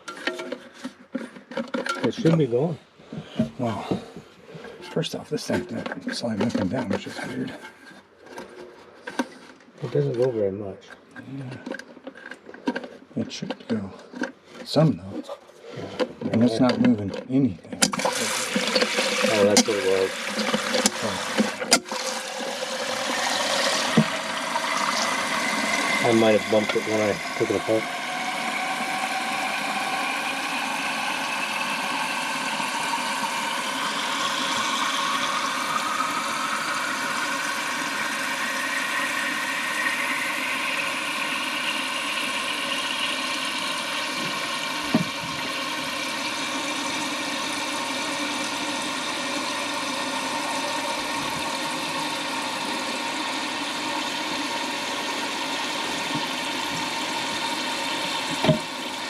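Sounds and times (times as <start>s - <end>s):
toilet tank refilling: 17.8s - 59.0s.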